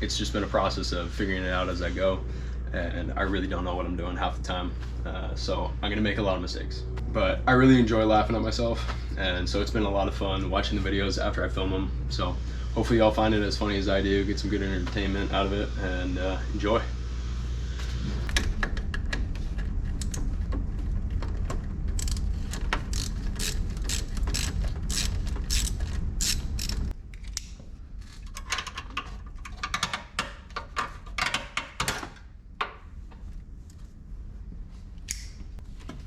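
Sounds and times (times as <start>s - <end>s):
low steady hum: 0.0s - 36.0s
ratcheting mechanical clicks: 21.9s - 27.5s.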